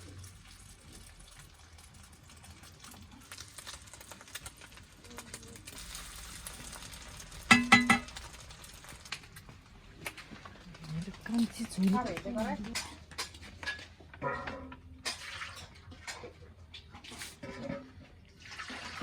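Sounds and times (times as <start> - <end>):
food sizzling in a pan: 0.0 - 13.7
stirring in a pan: 0.0 - 19.0.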